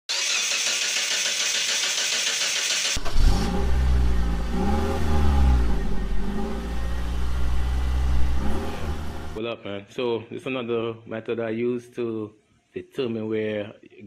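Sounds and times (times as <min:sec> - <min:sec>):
car engine revving: 0:02.8 - 0:09.4.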